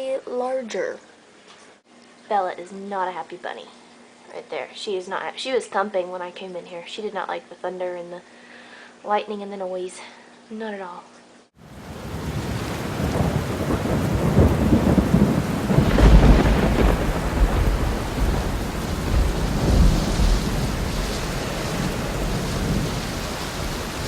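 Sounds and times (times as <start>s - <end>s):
heavy downpour: 11.6s - 24.0s
thunder rumbling: 11.7s - 24.0s.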